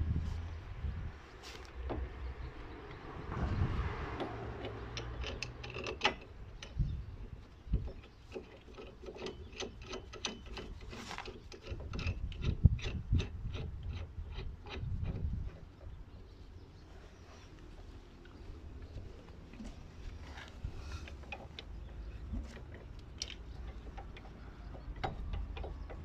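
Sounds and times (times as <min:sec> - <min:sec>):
sharp metal clicks: 0:04.1 - 0:15.9, 0:21.0 - 0:26.0
hand tools scraping metal: 0:08.0 - 0:15.0.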